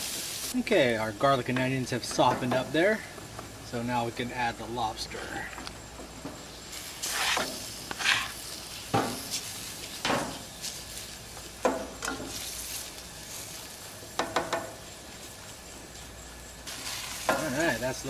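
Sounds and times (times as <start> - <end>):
food sizzling in a skillet: 0.0 - 1.4, 6.4 - 18.0.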